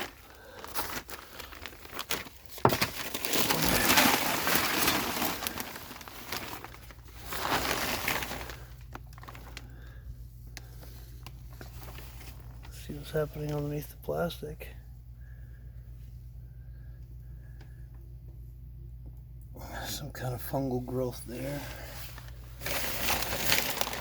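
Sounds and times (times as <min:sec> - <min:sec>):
plastic sheeting crinkling: 0:00.0 - 0:14.8, 0:20.7 - 0:24.0
steady low hum: 0:00.0 - 0:24.0.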